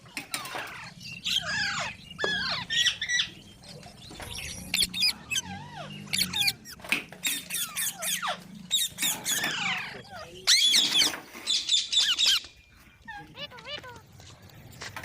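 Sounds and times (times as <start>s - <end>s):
parrot squawking and chirping: 0.3s - 14.0s.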